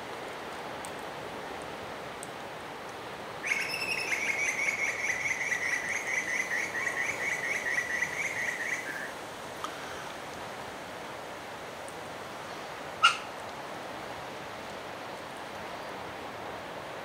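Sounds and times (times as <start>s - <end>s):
bird trilling: 3.4s - 9.1s, 13.0s - 13.3s.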